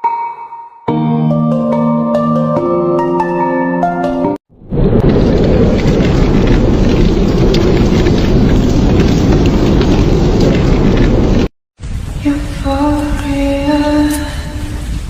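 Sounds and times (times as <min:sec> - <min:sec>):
storm rushing noise: 0:04.5 - 0:15.0.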